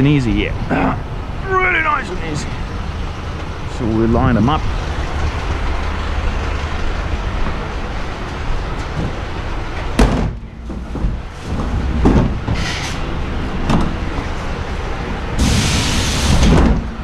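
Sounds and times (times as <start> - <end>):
steady background rumble: 0.0 - 17.0
wheelie bins being wheeled: 8.1 - 14.7.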